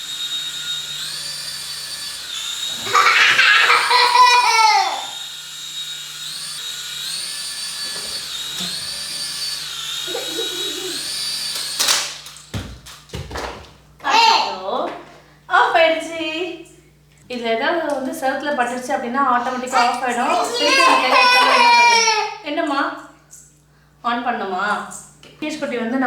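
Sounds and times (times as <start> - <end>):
toy helicopter motor whining: 0.0 - 12.4, 19.5 - 22.2
baby squealing and laughing: 2.8 - 5.2, 10.1 - 11.1, 19.4 - 22.4.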